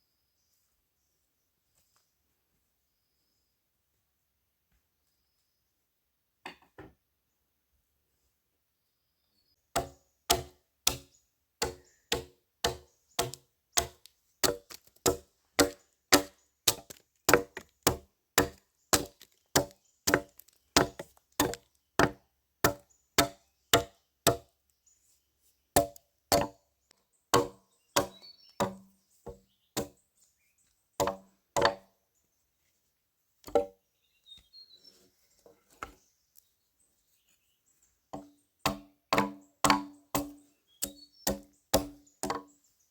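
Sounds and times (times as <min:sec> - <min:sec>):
hand tool striking wood: 0:09.7 - 0:24.5, 0:25.8 - 0:26.6, 0:27.3 - 0:30.0, 0:31.0 - 0:31.9, 0:33.5 - 0:33.8, 0:38.2 - 0:42.6.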